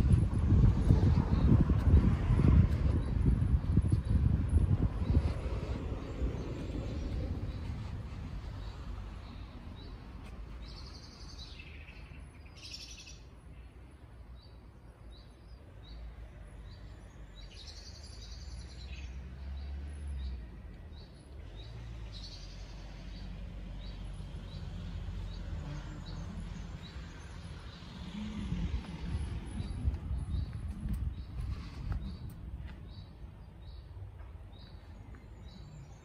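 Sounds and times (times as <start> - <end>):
low outdoor rumble: 0.0 - 11.3, 20.3 - 36.0.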